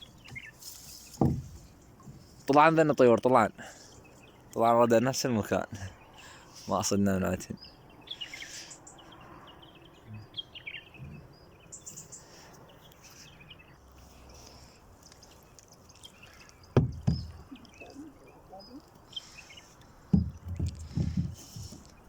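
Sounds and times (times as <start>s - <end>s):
sharp knocks: 1.1s - 2.2s, 16.8s - 17.5s, 20.1s - 21.8s
faint bird chirps: 7.4s - 22.0s.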